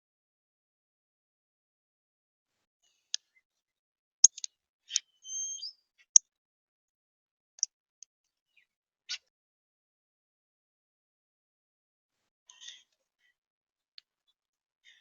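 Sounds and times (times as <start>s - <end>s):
songbird chip notes: 4.2s - 5.7s
bird whistled note: 5.2s - 5.8s.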